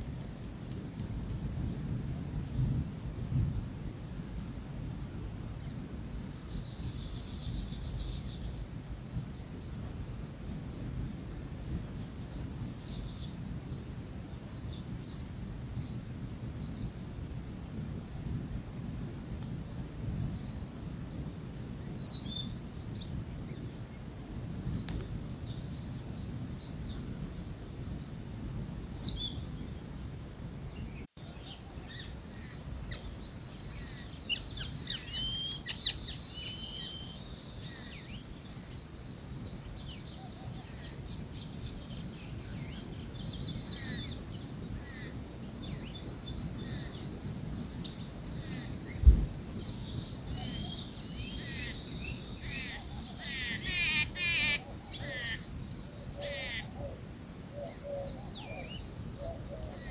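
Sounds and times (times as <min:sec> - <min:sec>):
birds chirping: 0:30.6 - 0:59.9.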